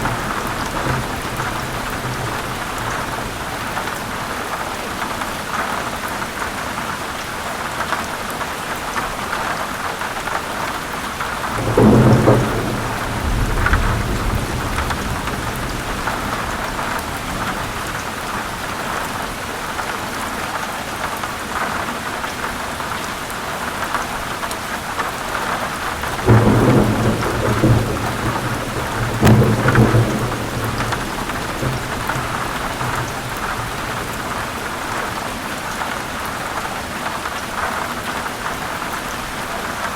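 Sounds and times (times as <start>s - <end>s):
thunder rumbling: 0.0s - 4.2s, 11.1s - 19.4s, 25.7s - 35.9s
heavy rain falling: 0.0s - 39.9s.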